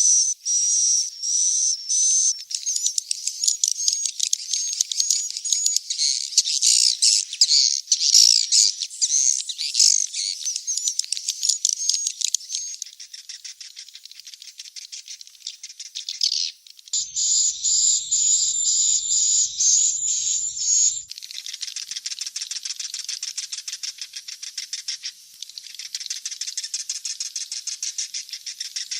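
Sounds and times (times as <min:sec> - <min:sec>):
bird chicks twittering: 0:17.0 - 0:21.1
faint low hum: 0:17.0 - 0:21.1.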